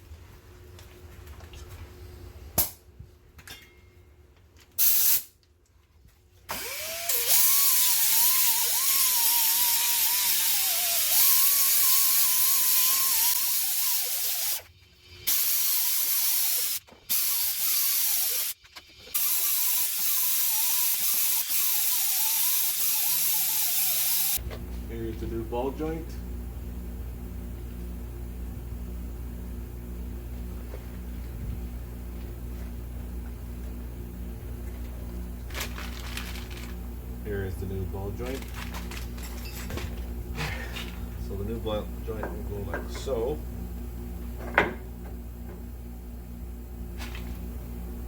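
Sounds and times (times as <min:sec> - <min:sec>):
power tool whining: 0:06.5 - 0:24.4.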